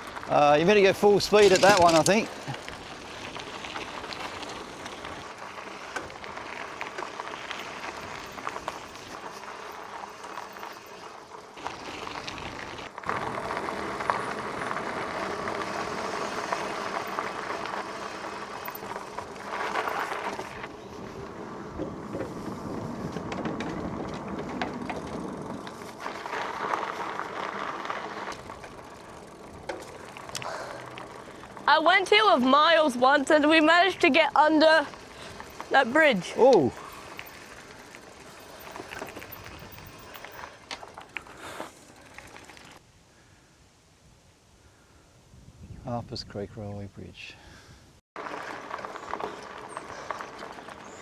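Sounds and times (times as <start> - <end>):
bicycle clicks and rattles: 0.0 - 33.9, 34.6 - 42.8, 48.2 - 51.0
tyre and wind rush: 11.7 - 31.8.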